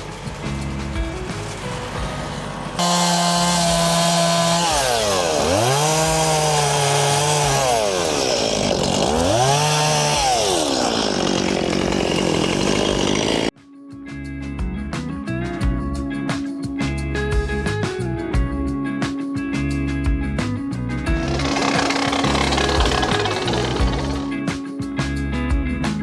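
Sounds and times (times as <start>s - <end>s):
background music: 0.0s - 10.7s
chainsaw revving: 0.0s - 13.5s, 21.1s - 24.6s.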